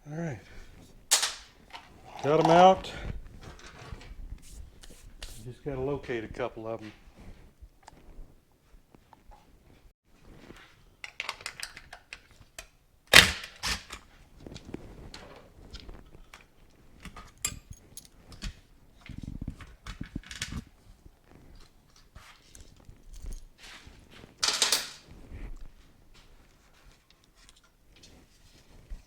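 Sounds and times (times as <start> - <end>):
tools clicking and knocking: 1.1 - 2.7, 24.4 - 25.0.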